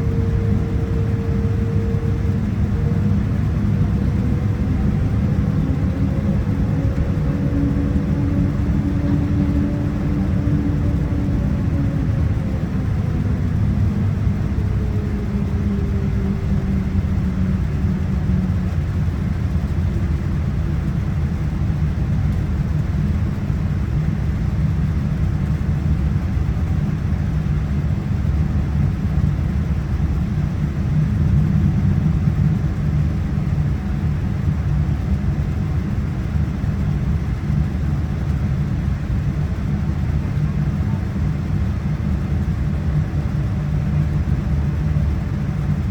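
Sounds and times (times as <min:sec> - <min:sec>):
faint whine sliding down: 0:00.0 - 0:21.6
low rumble of jet engines: 0:00.0 - 0:45.9.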